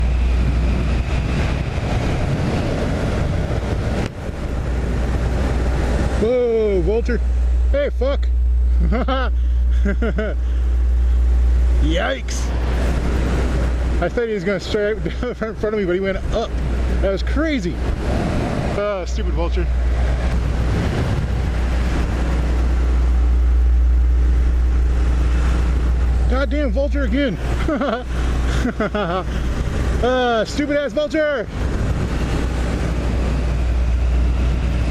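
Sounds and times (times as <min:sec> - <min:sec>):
motorcycle engine drone: 0:00.0 - 0:34.9
wind rushing over microphone: 0:00.0 - 0:34.9
motorcycle engine running: 0:18.8 - 0:34.9.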